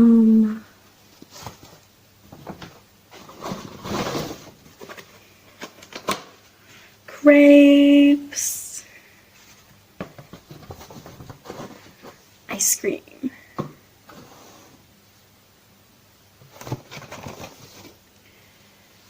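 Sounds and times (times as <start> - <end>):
woman humming mmm: 0.0 - 0.7
food handling clicks and rustles: 1.2 - 6.6, 9.4 - 12.3, 16.4 - 18.0.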